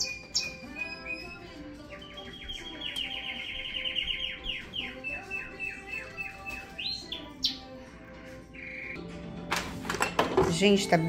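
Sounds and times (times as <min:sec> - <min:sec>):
songbird chirping and whistling: 0:00.0 - 0:07.8, 0:08.5 - 0:09.0.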